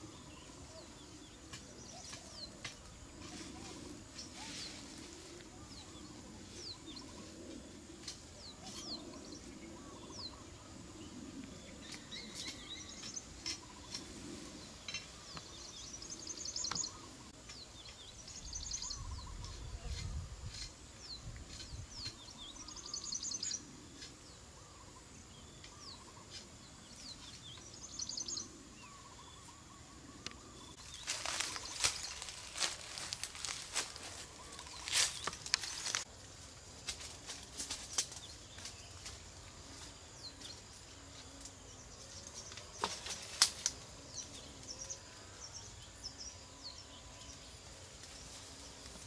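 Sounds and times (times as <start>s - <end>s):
birds chirping: 0.0s - 36.2s.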